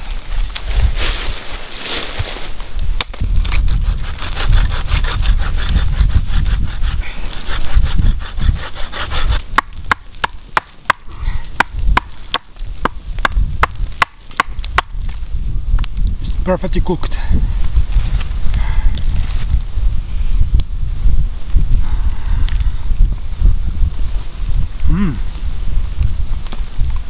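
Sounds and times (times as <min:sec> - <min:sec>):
hand saw cutting wood: 0:03.5 - 0:10.0.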